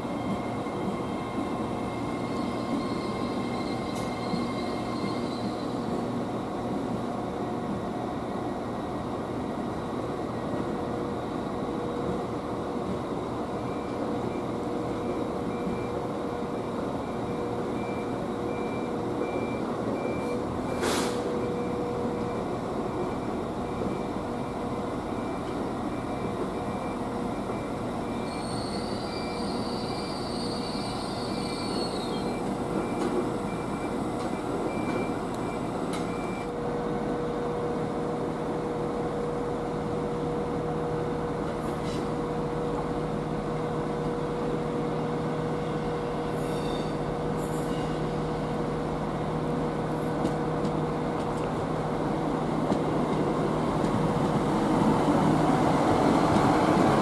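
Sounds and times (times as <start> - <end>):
train rumbling: 0.0 - 57.0
wheel squeal: 2.0 - 5.8, 28.2 - 32.5, 46.4 - 48.3
short beeps: 31.5 - 36.5.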